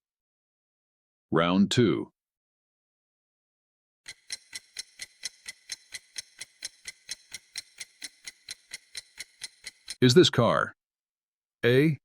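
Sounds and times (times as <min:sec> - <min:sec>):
countdown timer ticking: 0:04.1 - 0:10.2.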